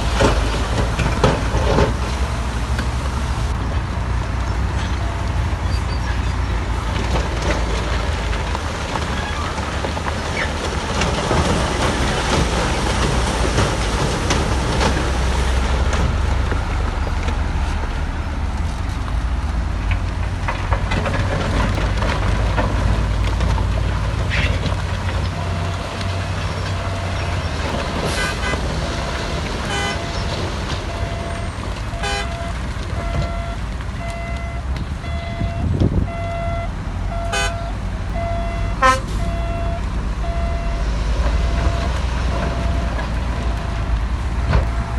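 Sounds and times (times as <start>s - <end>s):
sharp knocks and clanks: 0.0s - 2.9s
diesel machinery running: 0.0s - 44.9s
reversing alarm beeping: 25.4s - 27.5s, 28.2s - 44.9s.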